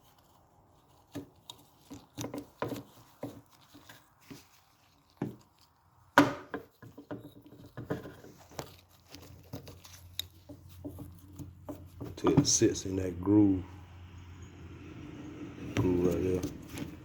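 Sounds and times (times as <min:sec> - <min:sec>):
hands working a rubber gasket: 0:00.0 - 0:12.8, 0:15.6 - 0:17.0.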